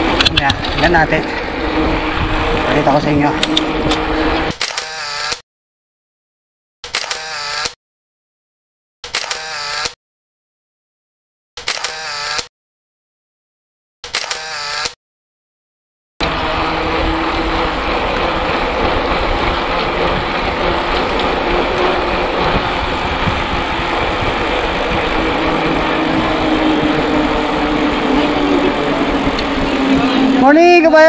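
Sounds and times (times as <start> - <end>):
wind rush on microphone: 0.0 - 4.5, 16.3 - 31.0
bike tyres rolling: 16.3 - 30.2.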